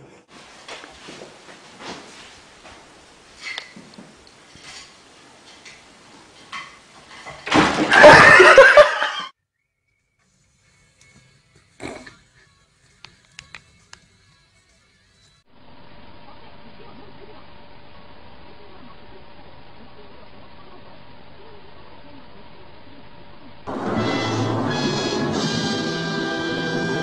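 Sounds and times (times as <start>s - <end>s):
faint television voices: 10.7s - 23.7s.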